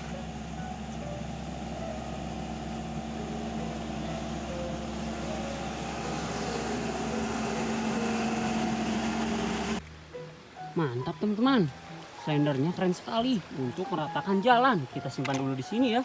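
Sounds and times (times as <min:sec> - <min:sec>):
mechanical drone with low hum: 0:00.0 - 0:10.1.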